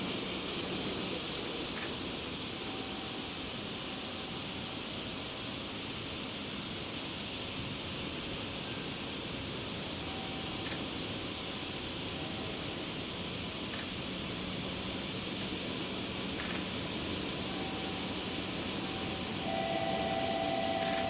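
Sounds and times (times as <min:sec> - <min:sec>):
background hiss: 0:00.0 - 0:21.0
high-pitched insect chirping: 0:06.5 - 0:21.0.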